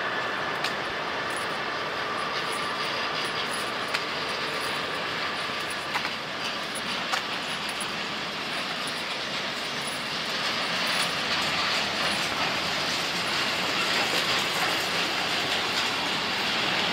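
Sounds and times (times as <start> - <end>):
freight train rolling: 0.0 - 16.9.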